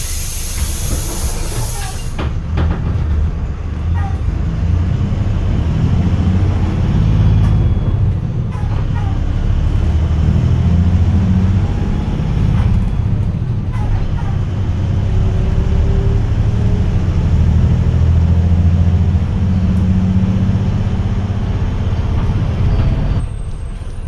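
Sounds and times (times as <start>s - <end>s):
compressed air hiss: 0.0s - 2.2s
bus diesel engine rumbling: 0.0s - 24.0s.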